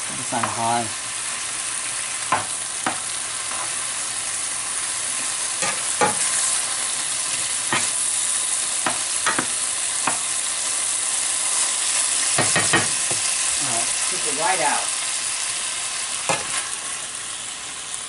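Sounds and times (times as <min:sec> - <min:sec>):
meat sizzling in a pan: 0:00.0 - 0:18.0.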